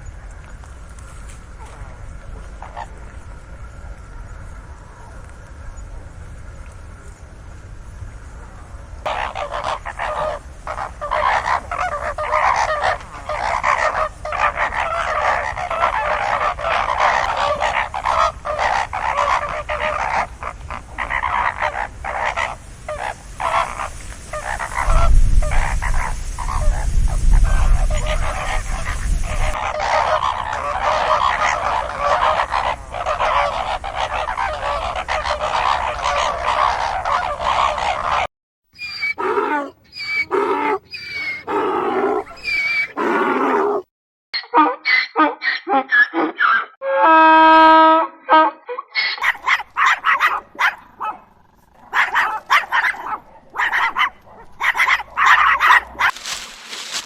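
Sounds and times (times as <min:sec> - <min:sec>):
geese honking: 0:09.0 - 0:26.8, 0:27.4 - 0:43.5.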